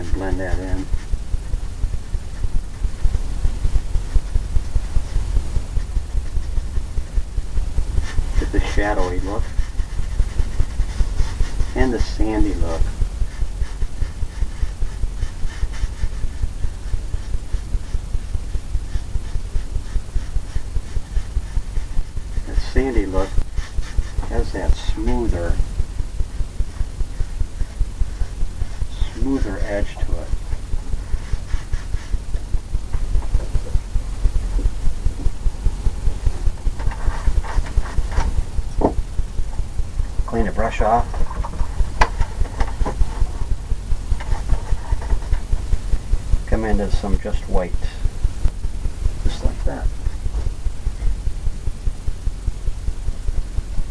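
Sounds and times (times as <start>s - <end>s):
faint bristle scratch: 8.0s - 25.6s, 26.7s - 30.4s.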